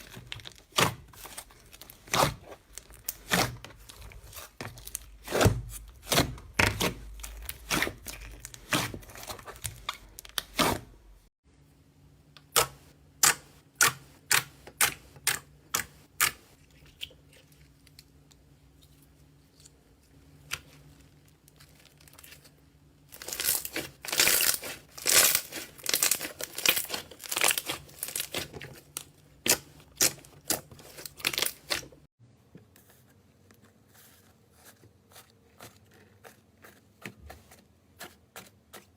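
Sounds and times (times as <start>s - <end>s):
slime crackling and popping: 23.2s - 31.9s.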